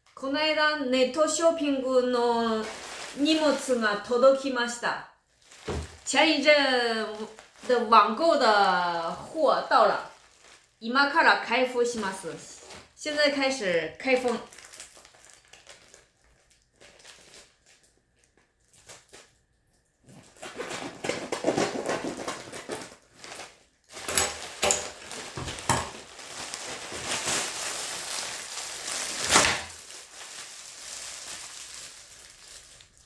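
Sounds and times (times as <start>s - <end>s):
packaging rustling and tearing: 2.5s - 3.8s, 5.3s - 10.8s, 14.1s - 33.0s.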